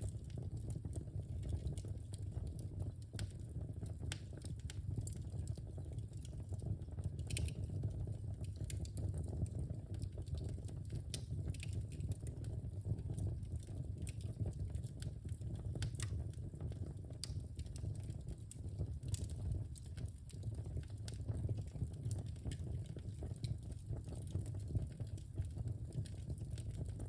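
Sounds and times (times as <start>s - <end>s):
burning logs popping and crackling: 0.0s - 27.0s
low rumble of flames: 0.0s - 27.0s.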